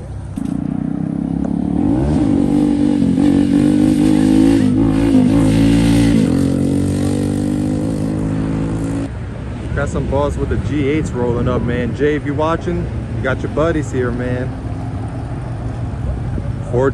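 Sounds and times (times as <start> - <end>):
car engine revving: 0.4 - 9.1.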